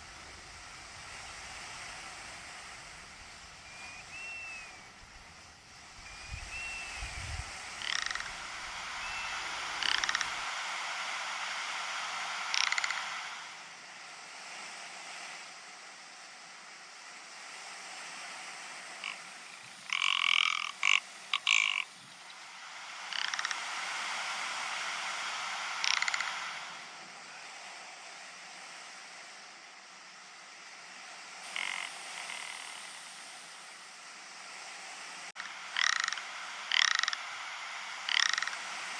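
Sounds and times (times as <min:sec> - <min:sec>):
bird rattling croak calls: 0:07.6 - 0:10.6, 0:12.3 - 0:13.4, 0:19.0 - 0:23.7, 0:25.3 - 0:26.9, 0:31.4 - 0:33.5, 0:35.4 - 0:38.8.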